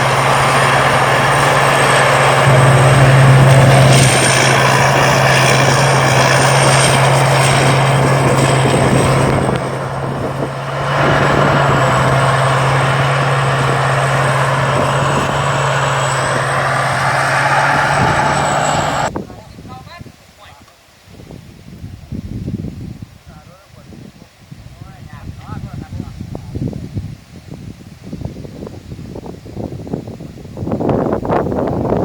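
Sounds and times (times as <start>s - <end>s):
combine harvester engine running: 0.0s - 19.1s
thin high whine: 0.0s - 19.1s.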